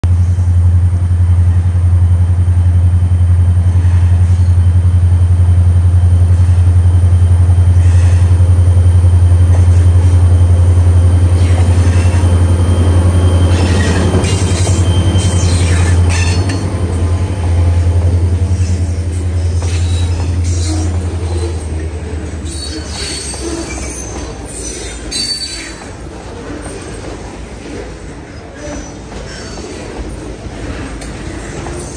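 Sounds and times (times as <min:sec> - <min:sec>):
locomotive engine droning: 0:00.1 - 0:31.9
steel wheel squeal: 0:11.3 - 0:16.7, 0:18.5 - 0:25.9.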